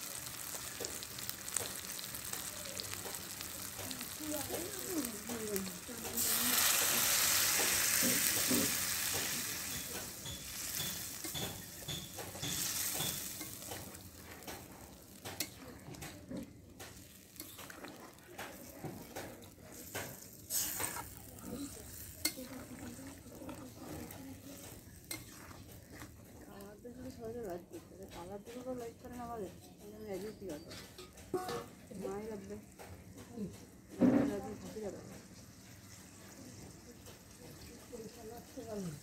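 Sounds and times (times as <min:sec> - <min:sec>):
liquid sizzling in hot pan: 0:00.0 - 0:28.9, 0:33.6 - 0:39.0
metal spatula scraping pan: 0:06.1 - 0:14.7, 0:19.8 - 0:26.4.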